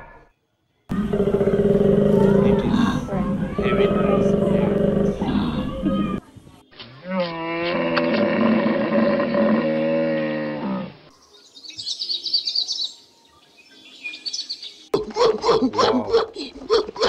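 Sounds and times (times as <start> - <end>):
cow mooing: 0.9 - 6.2.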